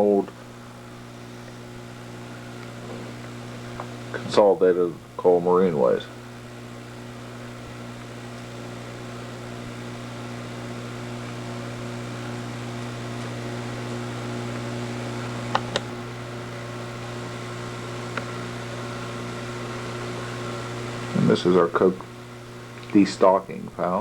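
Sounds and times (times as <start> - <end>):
room machine humming: 0.0 - 24.0.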